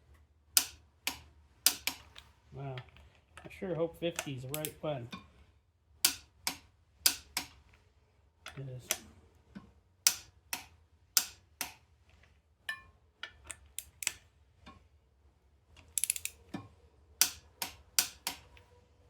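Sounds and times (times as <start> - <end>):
ratchet wrench clicking: 0.6 - 2.1, 4.2 - 4.8, 15.9 - 16.4, 17.2 - 18.5.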